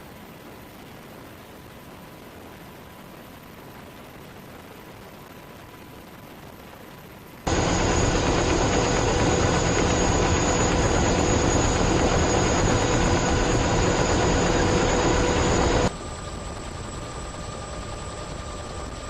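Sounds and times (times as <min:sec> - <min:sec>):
faint steady whine: 0:00.0 - 0:19.0
aircraft engine noise: 0:07.4 - 0:19.0.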